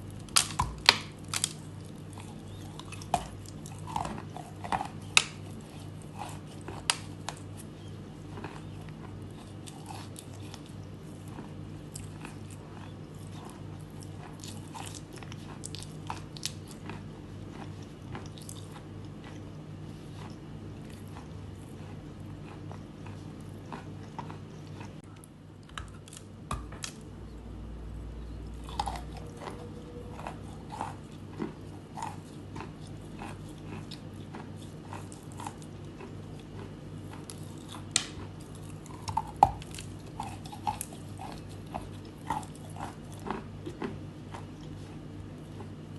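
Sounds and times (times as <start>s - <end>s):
chalk crunching being chewed: 0.0s - 27.0s, 28.4s - 45.9s
low hum: 16.6s - 45.9s.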